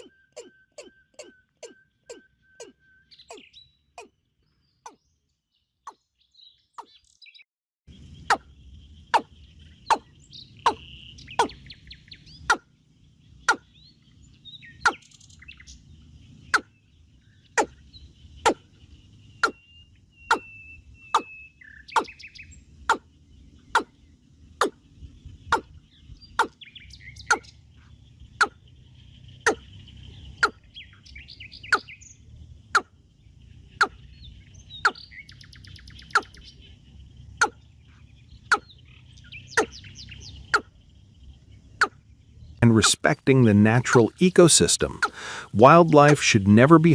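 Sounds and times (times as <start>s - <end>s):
birds chirping: 0.0s - 46.9s.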